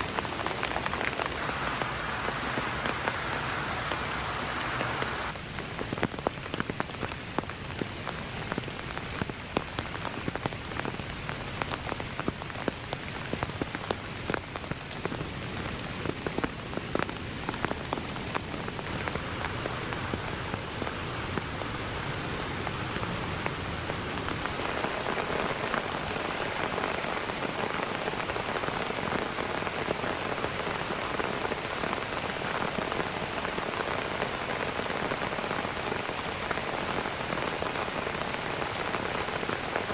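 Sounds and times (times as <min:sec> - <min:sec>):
heavy rain falling: 0:00.0 - 0:39.9
sharp raindrop hits: 0:00.1 - 0:07.0.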